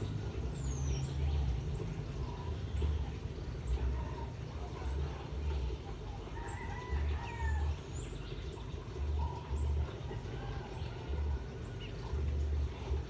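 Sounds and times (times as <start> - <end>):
rooster crowing: 6.3 - 7.8.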